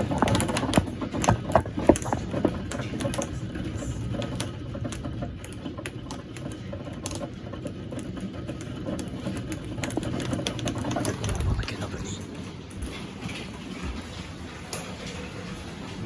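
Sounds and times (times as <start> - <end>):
drops ticking on hard surface: 0.0 - 11.8
rain pattering: 0.0 - 16.0.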